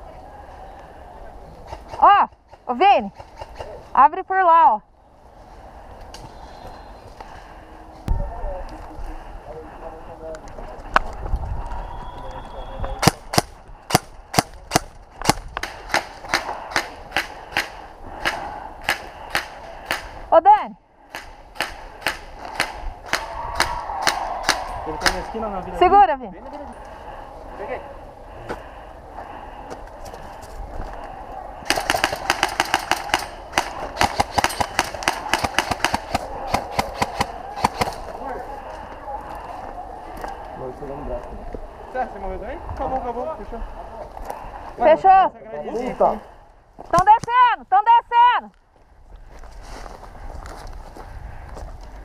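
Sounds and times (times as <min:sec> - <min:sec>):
airsoft guns firing: 0:13.0 - 0:20.2, 0:21.1 - 0:25.2, 0:31.6 - 0:38.2.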